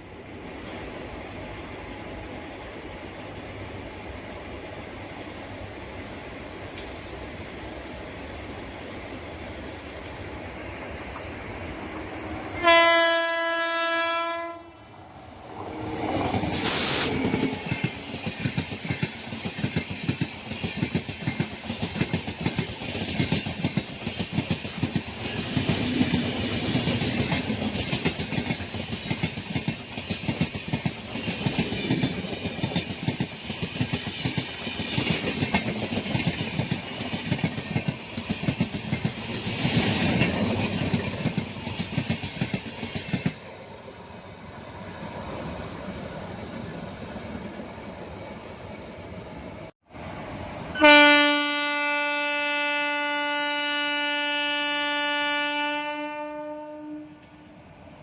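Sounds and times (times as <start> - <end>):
locomotive horn blast: 12.5 - 14.9, 50.8 - 57.2
train wheels clickety-clack: 14.7 - 44.0.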